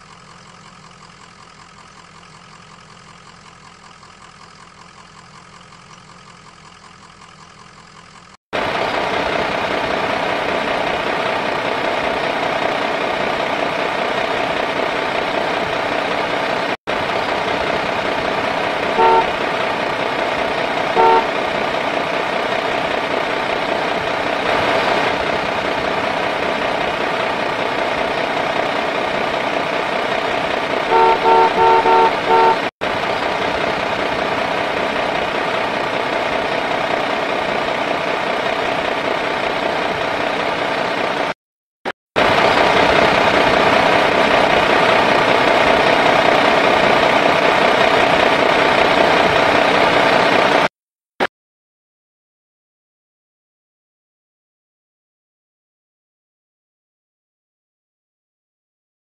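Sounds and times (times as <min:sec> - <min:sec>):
truck engine running: 0:00.0 - 0:41.4, 0:42.2 - 0:50.7
horn honks: 0:18.8 - 0:19.6, 0:20.9 - 0:21.4, 0:30.9 - 0:32.7.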